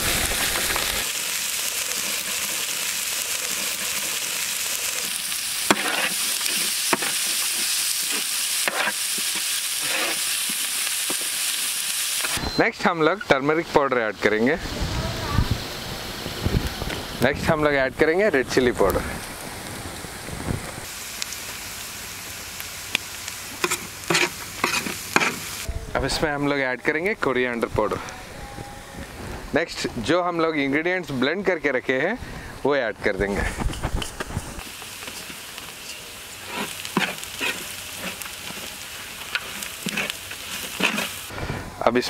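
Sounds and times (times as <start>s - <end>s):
onions frying in hot oil: 0.0s - 27.9s, 29.0s - 41.5s
metal ladle scraping a pot: 5.7s - 10.5s, 23.6s - 25.4s, 35.2s - 38.7s, 39.3s - 41.2s.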